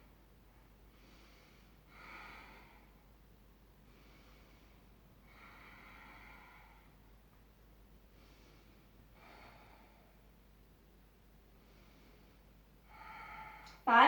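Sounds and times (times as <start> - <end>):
woman breathing: 0.0 - 14.0.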